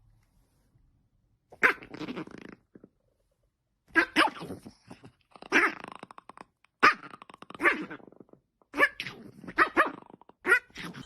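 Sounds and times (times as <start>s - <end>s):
dog barking: 3.9s - 4.5s, 8.7s - 11.0s.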